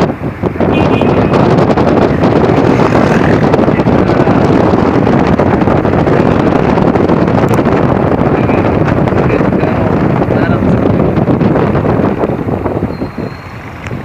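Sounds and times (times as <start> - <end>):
moving vehicle running: 0.0 - 14.0
wind buffeting microphone: 0.0 - 14.0.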